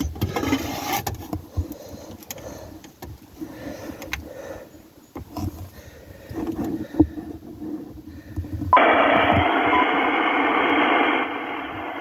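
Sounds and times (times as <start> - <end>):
radio receiver hiss: 8.8 - 12.0.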